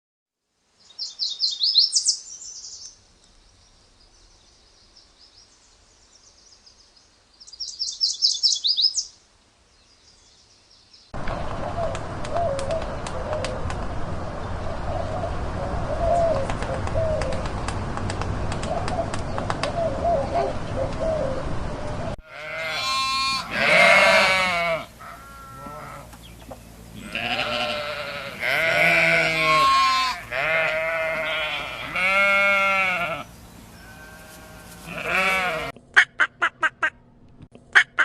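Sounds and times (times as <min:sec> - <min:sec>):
quavering animal calls: 0:22.3 - 0:37.0.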